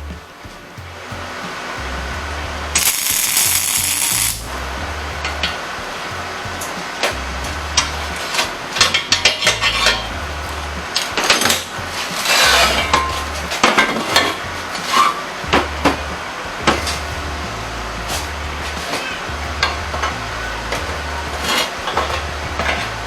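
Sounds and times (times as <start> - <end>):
background music with bass line: 0.0 - 23.0
short hiss: 2.8 - 4.5.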